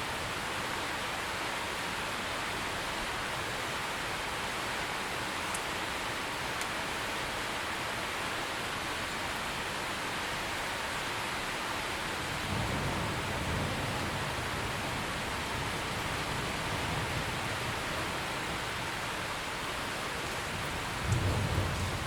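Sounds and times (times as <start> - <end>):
heavy rain falling: 0.0 - 22.0
faint sharp drip ticks: 5.5 - 5.7, 6.6 - 6.8.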